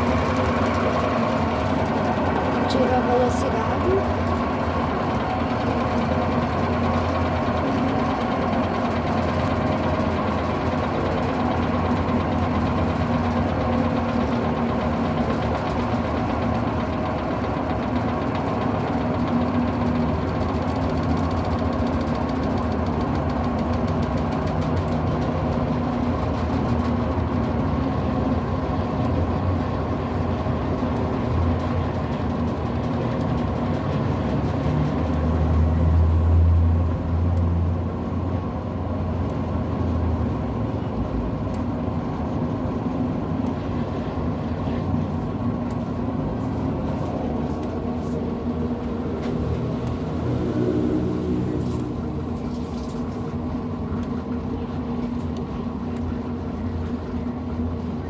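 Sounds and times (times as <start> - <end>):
washing machine spinning: 0.0 - 58.0.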